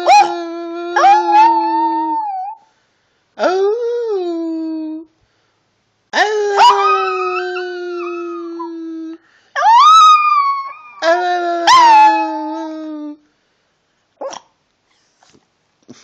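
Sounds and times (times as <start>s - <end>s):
small dog howling: 0.0s - 2.7s, 6.2s - 13.2s.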